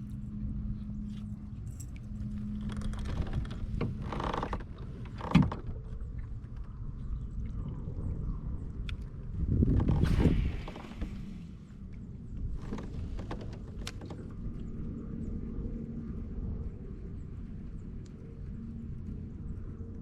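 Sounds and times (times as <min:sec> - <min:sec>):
low hum: 0:00.0 - 0:20.0
low steady rumble: 0:00.0 - 0:20.0
gear knocking and rattling in kayak: 0:02.4 - 0:06.6, 0:12.5 - 0:14.4.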